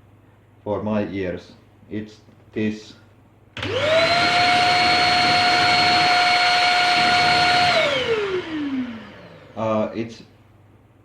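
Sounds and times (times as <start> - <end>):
stick vacuum motor whine: 3.6 - 10.0.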